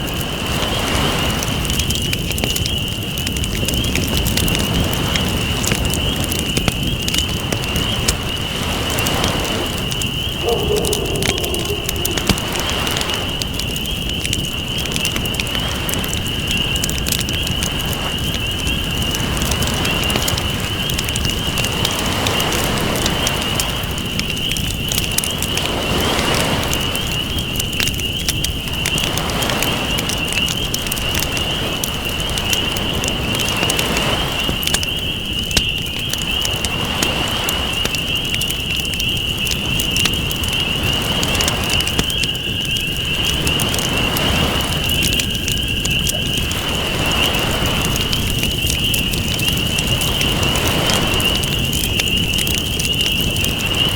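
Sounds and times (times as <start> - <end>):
campfire crackling and popping: 0.0 - 53.9
ocean waves: 8.5 - 13.9, 43.2 - 45.2, 46.0 - 48.3, 49.9 - 51.8.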